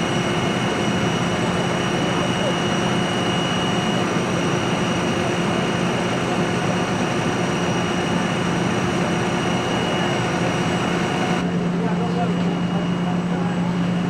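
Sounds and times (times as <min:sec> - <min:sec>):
large engine droning: 0:00.0 - 0:14.0.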